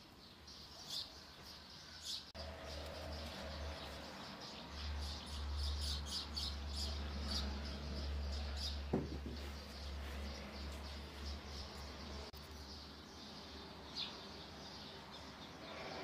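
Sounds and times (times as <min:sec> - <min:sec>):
small bird chirping: 0:00.2 - 0:16.0
sharp knock: 0:08.9 - 0:09.4.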